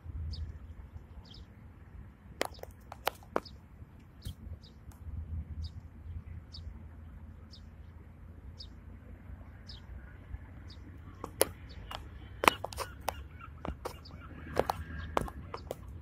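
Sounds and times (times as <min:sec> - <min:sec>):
low wind rumble: 0:00.0 - 0:16.0
small bird chirping: 0:00.3 - 0:01.6, 0:02.4 - 0:05.0, 0:05.6 - 0:08.8, 0:09.5 - 0:16.0
sharp clicks and snaps: 0:02.4 - 0:03.5.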